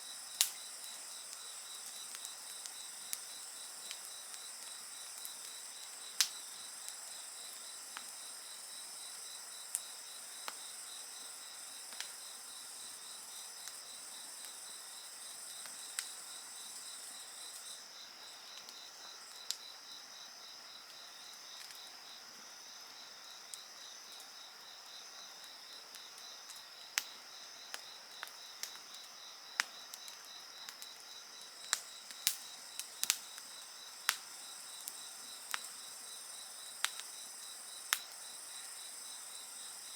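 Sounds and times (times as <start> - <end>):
insects trilling: 0.0 - 39.9
wood fire crackling: 0.2 - 19.6, 25.4 - 39.2.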